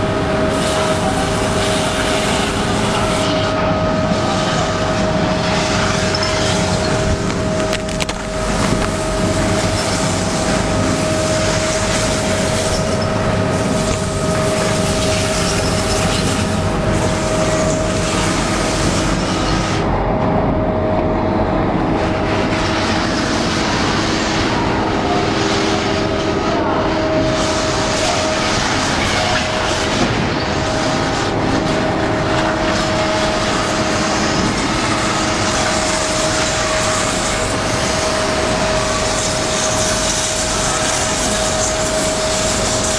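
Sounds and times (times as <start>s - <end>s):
grinding machine drone and whine: 0.0s - 42.9s
grinding hiss: 22.3s - 42.9s.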